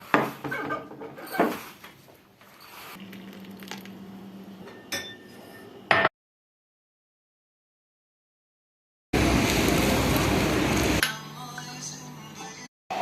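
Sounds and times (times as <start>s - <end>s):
glass and dishes clinking: 4.6s - 6.1s.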